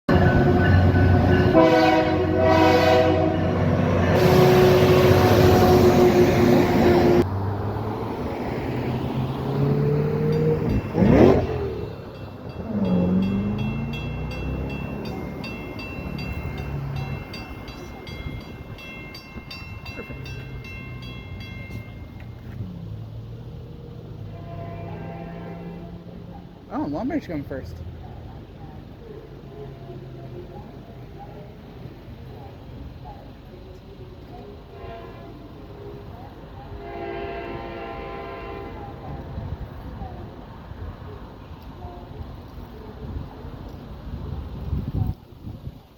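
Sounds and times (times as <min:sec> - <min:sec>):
train horn blasts: 0:00.1 - 0:07.2, 0:24.2 - 0:26.2, 0:34.6 - 0:35.7, 0:36.7 - 0:39.2
train rushing past: 0:00.1 - 0:33.4
level crossing bell ringing: 0:10.1 - 0:22.5.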